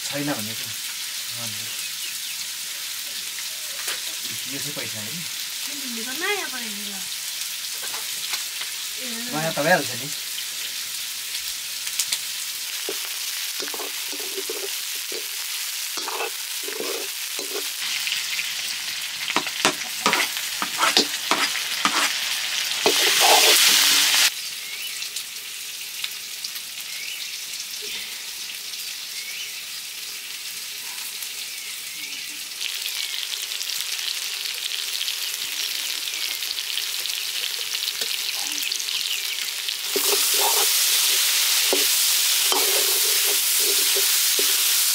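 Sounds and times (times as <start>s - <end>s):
chicken sizzling in oil: 0.0s - 44.9s
ladle scraping a wok: 12.8s - 15.4s, 16.0s - 17.8s, 19.4s - 24.3s, 39.8s - 44.9s.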